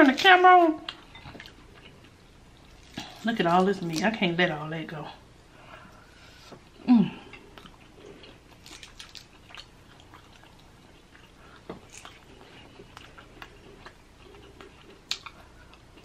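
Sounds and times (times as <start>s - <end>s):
person chewing: 0.9s - 3.2s, 7.1s - 16.0s.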